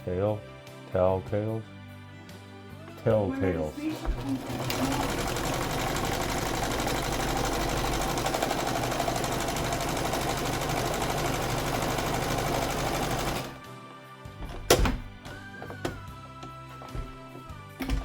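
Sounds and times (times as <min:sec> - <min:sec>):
sewing machine running: 0:04.2 - 0:13.6.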